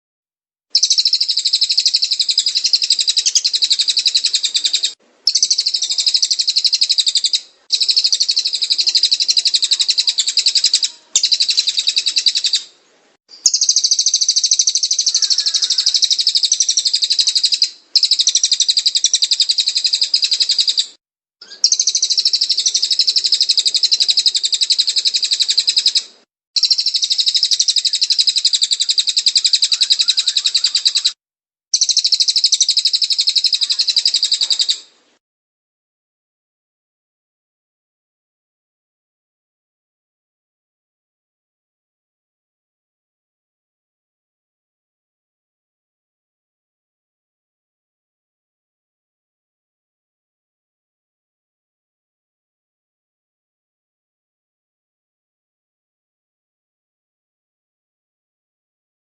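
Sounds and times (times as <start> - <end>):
bird singing rapid high chirps: 0.7 - 12.7, 13.3 - 34.9.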